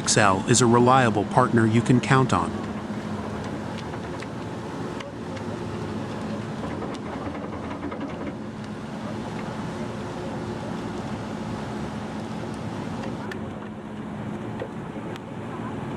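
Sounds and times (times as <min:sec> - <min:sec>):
wood chipper running: 0:01.8 - 0:13.4.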